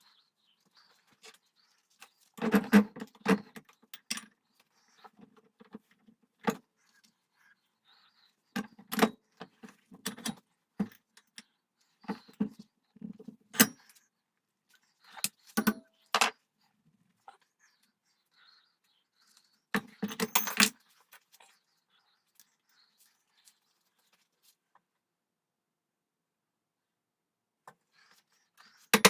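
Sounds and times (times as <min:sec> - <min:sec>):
metal tools clinking on workbench: 0:19.8 - 0:20.8.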